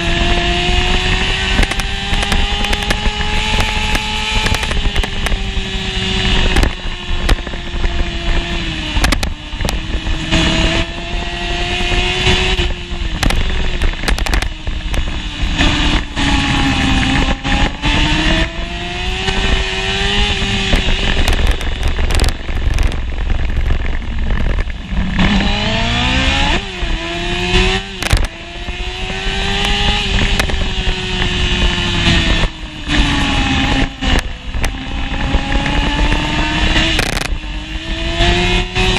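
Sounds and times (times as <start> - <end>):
motorcycle engine revving: 0.0 - 38.9
wind rushing: 0.0 - 38.9.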